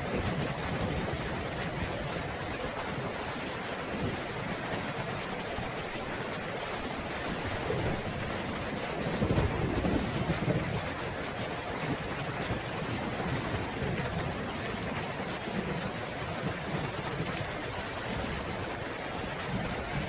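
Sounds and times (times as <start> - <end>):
thunder rumbling: 7.3 - 18.7.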